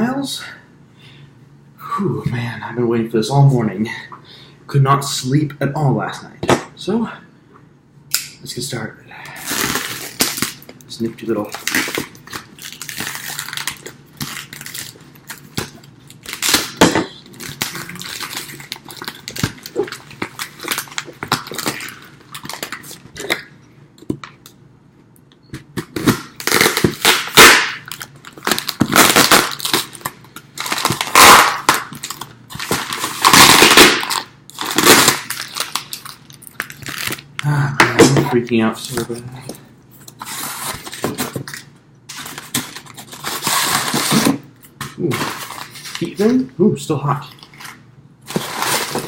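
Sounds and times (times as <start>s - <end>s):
tape being cut: 30.7s - 32.0s.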